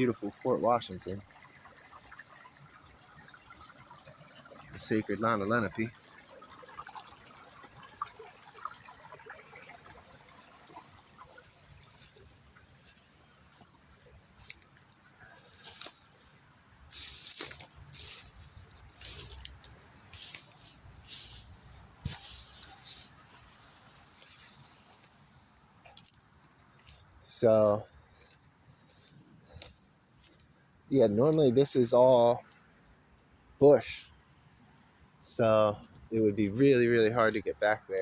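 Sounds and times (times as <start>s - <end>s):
insect chorus trilling: 0.0s - 38.0s
brief rustling: 14.3s - 16.2s, 16.9s - 26.2s.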